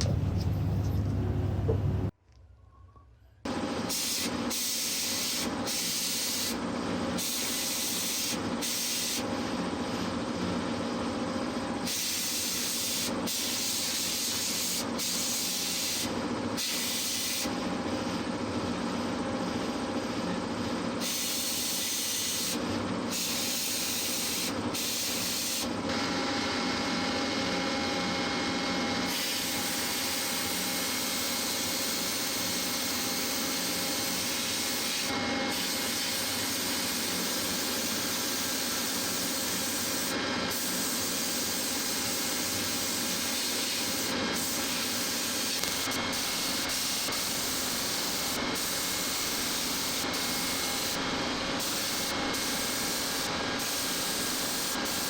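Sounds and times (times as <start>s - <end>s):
faint hum: 0.0s - 3.5s
workshop tool hissing: 3.5s - 10.2s, 11.8s - 17.8s, 21.0s - 26.1s, 29.0s - 55.0s.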